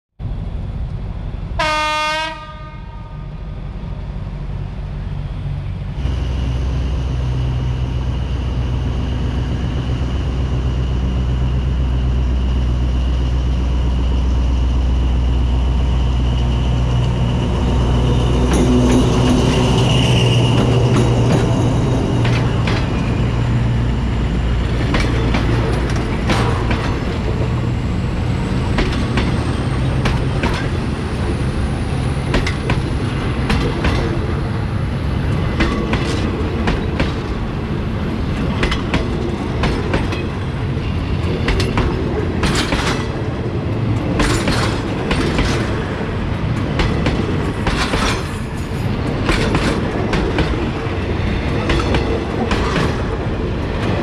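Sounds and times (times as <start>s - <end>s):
locomotive engine rumbling: 0.2s - 54.0s
locomotive horn blast: 1.6s - 3.4s
wheels clicking over rail joints: 41.2s - 54.0s.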